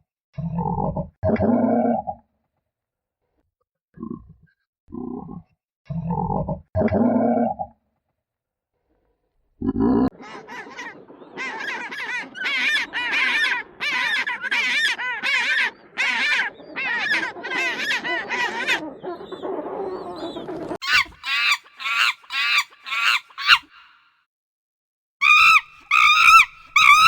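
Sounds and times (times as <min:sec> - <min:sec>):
bird fast higher calls: 0:10.2 - 0:24.0, 0:25.2 - 0:27.0.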